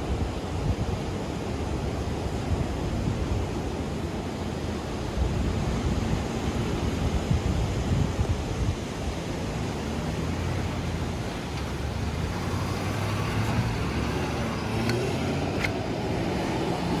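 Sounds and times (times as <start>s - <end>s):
road and wind noise: 0.0s - 17.0s
pickup truck engine humming: 9.5s - 17.0s.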